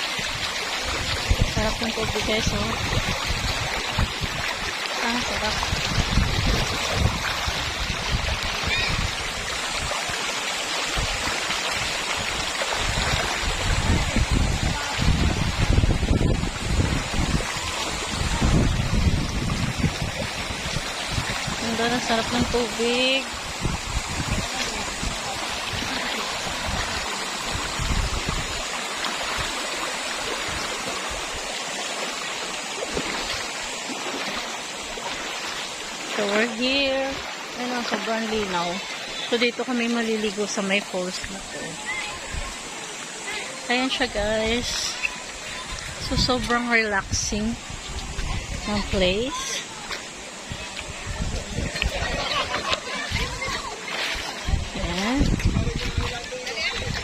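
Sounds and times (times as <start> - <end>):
wind buffeting microphone: 0.0 - 31.5, 44.0 - 57.0
waterfall rushing: 0.0 - 57.0.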